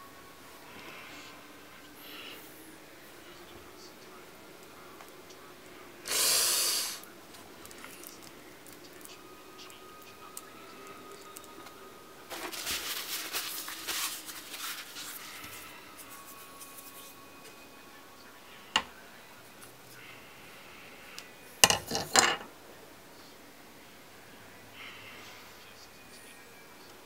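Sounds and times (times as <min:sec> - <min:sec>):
scraping and rustling of parts: 0:12.3 - 0:15.8.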